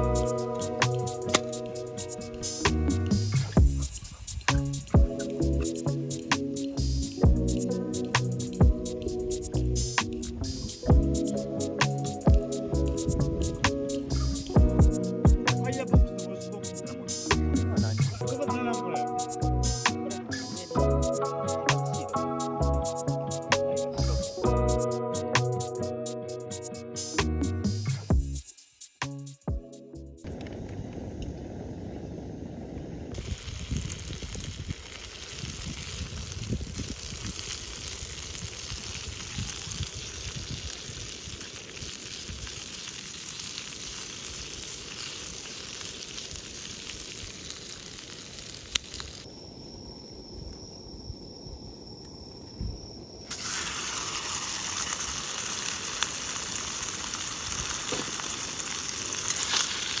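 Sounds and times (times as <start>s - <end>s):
food sizzling in frying: 0.0s - 29.4s, 33.2s - 49.3s, 53.3s - 60.0s.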